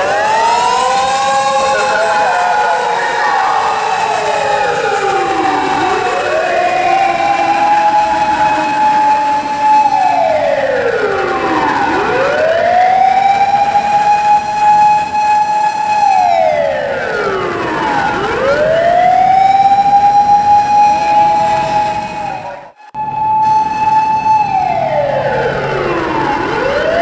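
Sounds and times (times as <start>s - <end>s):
fire engine siren wailing: 0.0s - 27.0s.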